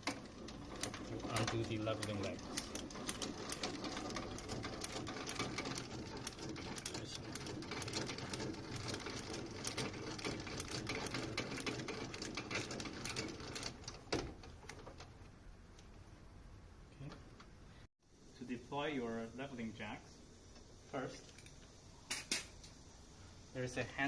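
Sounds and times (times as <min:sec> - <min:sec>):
leveling leg winding clatter: 0:00.0 - 0:15.2.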